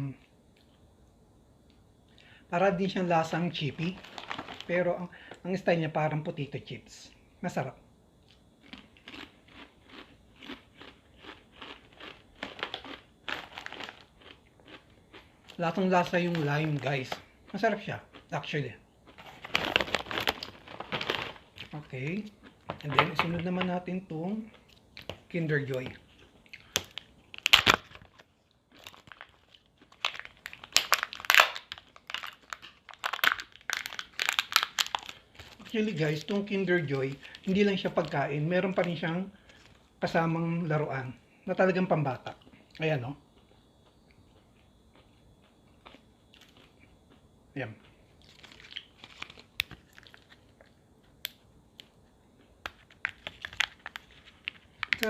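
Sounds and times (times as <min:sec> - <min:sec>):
foil wrapper crinkling: 0:03.8 - 0:05.4, 0:11.9 - 0:14.3, 0:15.5 - 0:17.3, 0:19.1 - 0:23.7, 0:25.0 - 0:39.8, 0:48.2 - 0:50.8, 0:52.6 - 0:55.0.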